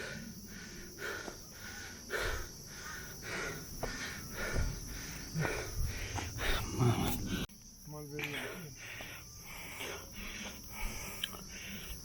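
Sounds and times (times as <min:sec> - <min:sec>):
insects chorus: 0:00.0 - 0:12.0
footsteps on a trail: 0:03.3 - 0:07.3, 0:08.2 - 0:12.0.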